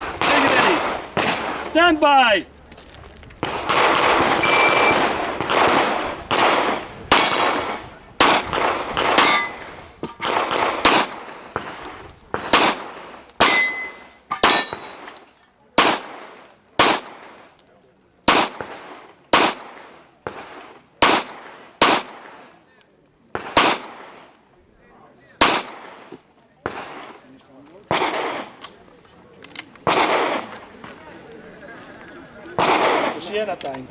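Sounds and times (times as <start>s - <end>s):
pistol shots echoing: 0.0s - 2.2s, 3.4s - 15.2s, 15.8s - 17.5s, 18.3s - 22.6s, 23.3s - 24.4s, 25.4s - 27.3s, 27.9s - 28.6s, 29.8s - 30.6s, 32.6s - 33.6s.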